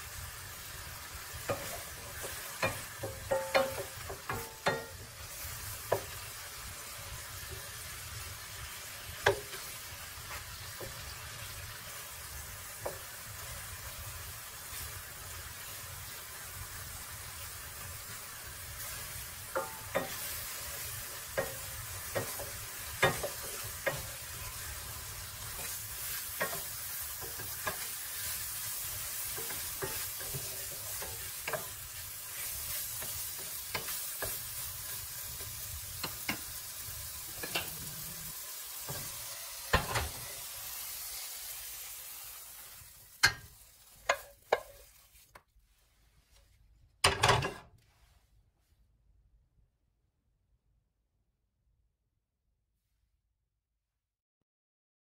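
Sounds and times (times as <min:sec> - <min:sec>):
apple slices sizzling in skillet: 0:00.0 - 0:46.0
wooden spatula scraping a pan: 0:01.3 - 0:06.5, 0:18.8 - 0:36.5, 0:43.2 - 0:48.4.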